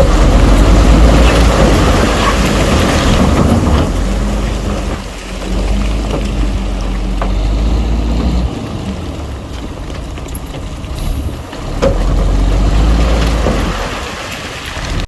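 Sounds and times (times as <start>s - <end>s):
diesel engine rumble: 0.0s - 15.0s
scattered clanks: 8.2s - 15.0s.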